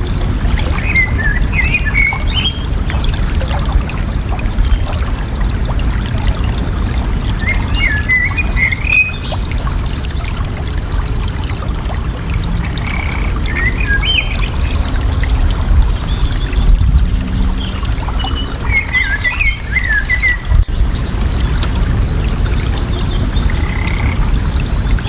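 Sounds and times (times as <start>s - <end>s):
water flowing and splashing: 0.0s - 25.0s
songbird warbling: 12.3s - 25.0s.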